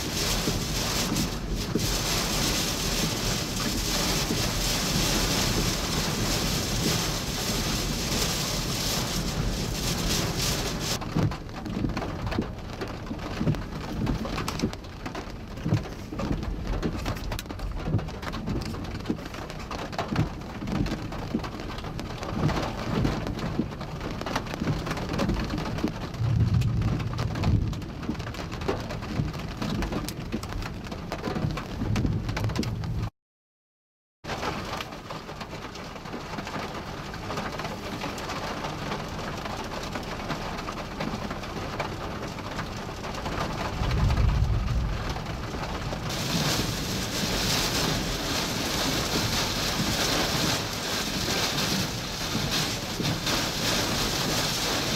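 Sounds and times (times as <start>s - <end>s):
heavy rain pelting down: 0.0s - 33.1s, 34.3s - 54.9s
wind gusting on microphone: 26.0s - 28.4s, 43.2s - 54.9s.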